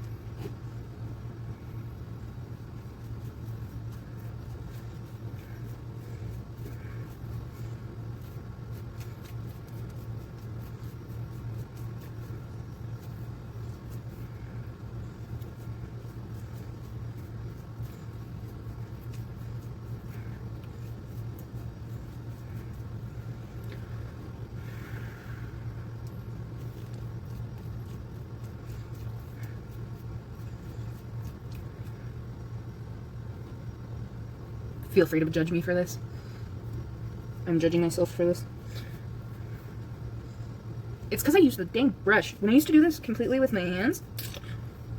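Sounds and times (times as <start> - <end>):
faint soft ticks and rustles: 0.0 - 24.5, 25.8 - 34.0
steady low hum: 0.0 - 44.9.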